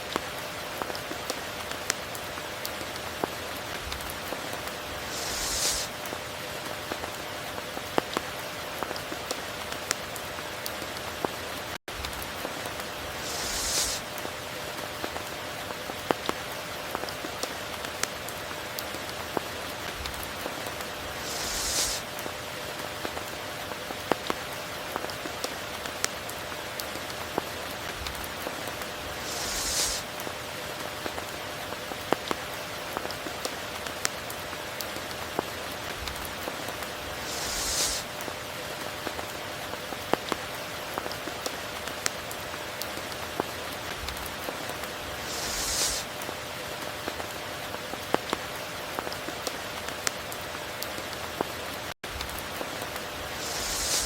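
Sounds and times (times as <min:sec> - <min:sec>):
rain drop ticks: 0:00.0 - 0:54.0
steady rain falling: 0:00.0 - 0:54.0
brief hissing swell: 0:05.0 - 0:05.9, 0:13.2 - 0:14.0, 0:21.2 - 0:22.0, 0:29.2 - 0:30.0, 0:37.2 - 0:38.1, 0:45.2 - 0:46.1, 0:53.4 - 0:54.0.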